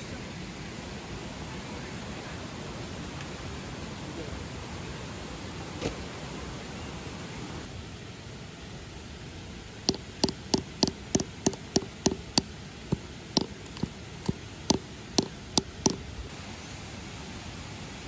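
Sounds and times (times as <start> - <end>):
tent stakes being hammered: 9.9 - 16.1.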